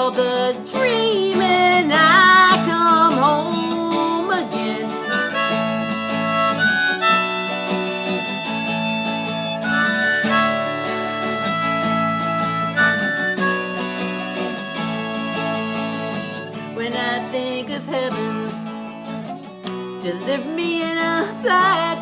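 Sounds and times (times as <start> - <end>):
acoustic guitar chords: 0.0 - 22.0
harmonica playing held notes: 1.7 - 17.2.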